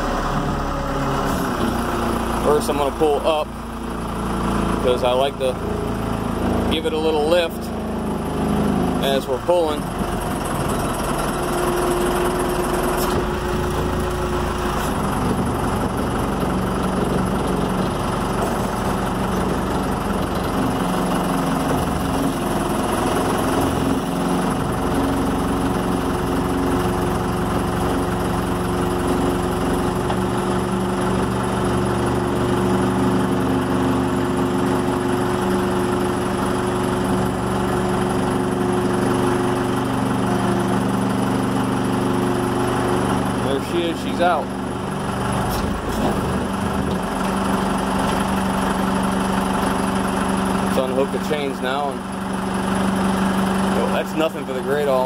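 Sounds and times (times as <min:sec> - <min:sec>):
excavator engine under load: 0:00.0 - 0:55.0.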